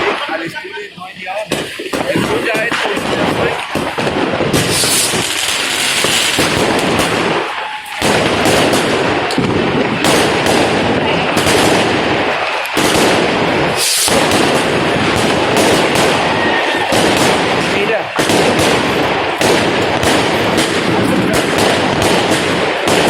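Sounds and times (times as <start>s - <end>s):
fireworks and firecrackers banging: 0.0s - 23.0s.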